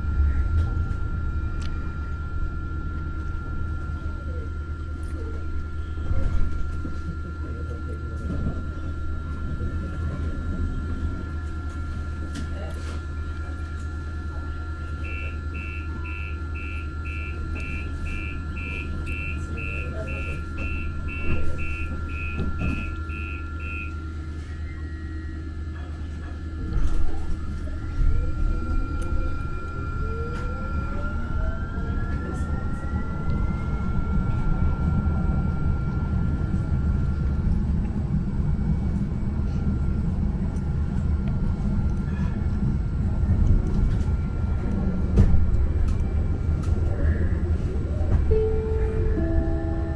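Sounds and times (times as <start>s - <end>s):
train door warning beeps: 0.0s - 25.6s, 26.6s - 49.9s
train motor whine: 0.0s - 49.9s
train wheel rumble: 0.0s - 49.9s.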